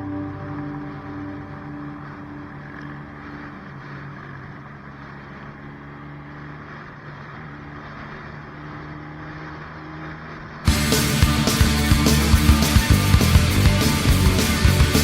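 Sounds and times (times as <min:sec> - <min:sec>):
rushing noise: 0:00.0 - 0:04.7, 0:10.7 - 0:15.0
motorcycle engine running steadily: 0:00.0 - 0:15.0.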